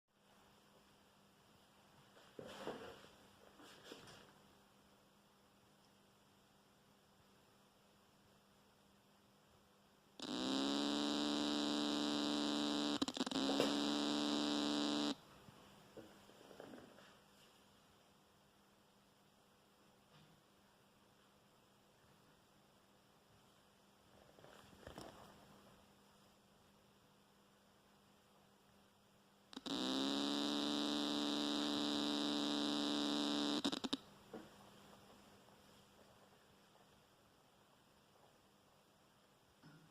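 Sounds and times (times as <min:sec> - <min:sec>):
guitar amp buzzing: 0:10.2 - 0:15.2, 0:29.6 - 0:34.0.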